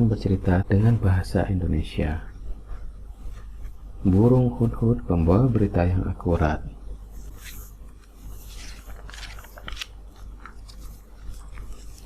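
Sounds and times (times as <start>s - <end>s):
paper pages rustling: 7.1s - 12.0s.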